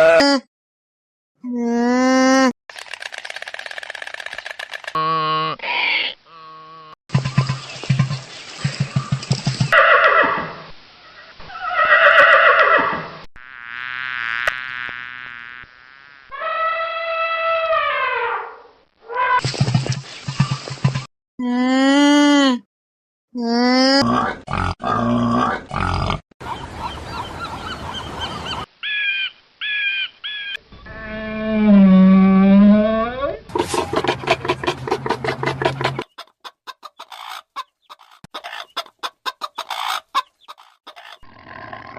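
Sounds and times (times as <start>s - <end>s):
long wavering animal call: 16.3s - 18.5s, 28.8s - 33.3s
rapid low pulsing animal sound: 30.8s - 36.2s.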